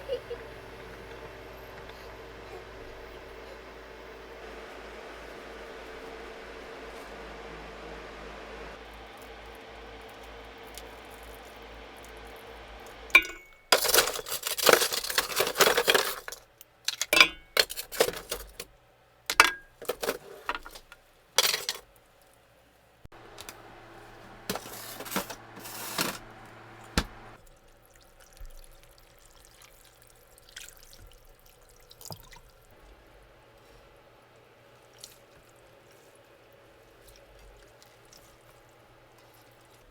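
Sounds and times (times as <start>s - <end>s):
dishes and glassware clinking: 13.2s - 16.2s, 17.0s - 18.6s, 21.4s - 21.8s
liquid pouring: 27.4s - 32.7s.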